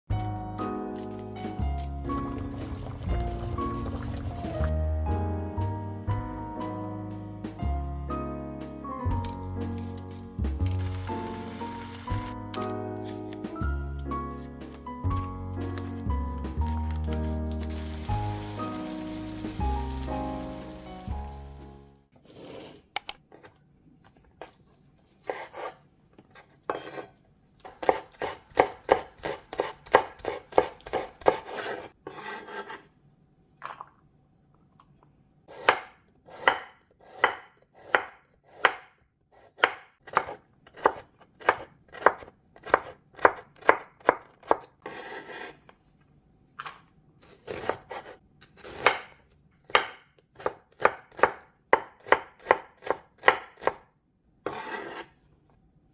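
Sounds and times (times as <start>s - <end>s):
knife chopping on cutting board: 26.7s - 32.8s, 35.5s - 45.6s, 47.4s - 53.9s, 54.5s - 55.1s.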